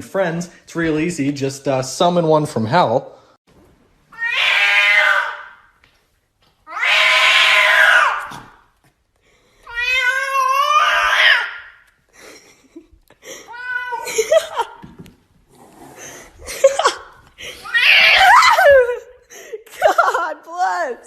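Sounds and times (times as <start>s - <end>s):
cat yowling: 4.1s - 5.7s, 6.7s - 8.5s, 9.7s - 11.8s, 13.5s - 14.4s, 17.6s - 18.9s.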